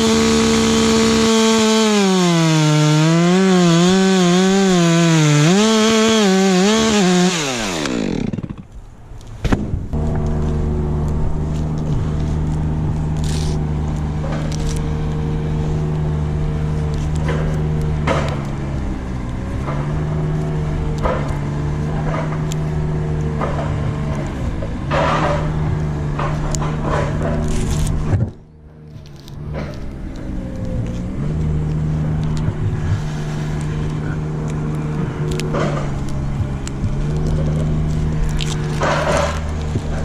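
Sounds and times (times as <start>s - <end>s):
chainsaw running: 0.0s - 8.8s, 10.0s - 18.7s, 32.0s - 40.0s.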